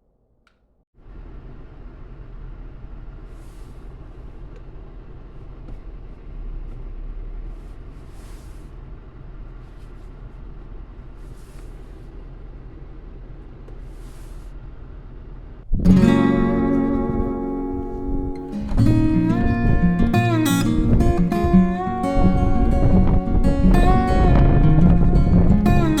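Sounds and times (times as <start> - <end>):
engine hum: 1.0 - 26.0
short hiss: 3.3 - 4.4, 7.5 - 8.8, 11.2 - 12.1, 13.8 - 14.5
acoustic guitar music: 15.8 - 26.0.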